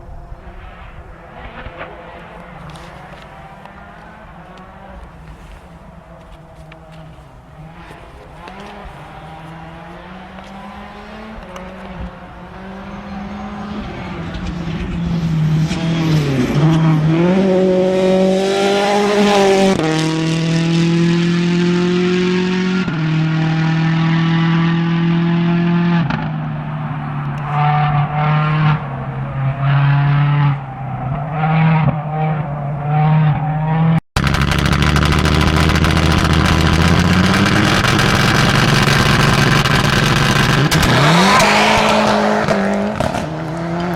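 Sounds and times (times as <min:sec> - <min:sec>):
rally car engine accelerating: 0:00.0 - 0:43.9
steady engine note: 0:34.2 - 0:43.3.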